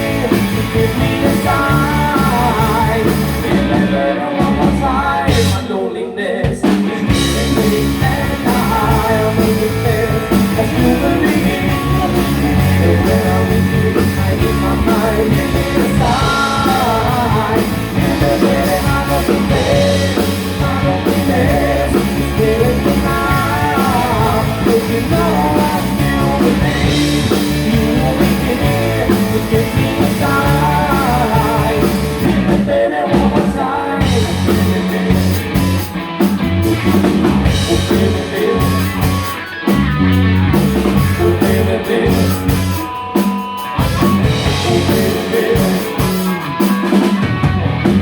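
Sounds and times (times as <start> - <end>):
person singing: 0.0 - 35.9, 36.8 - 39.5, 40.6 - 47.3
live rock band playing: 0.0 - 48.0.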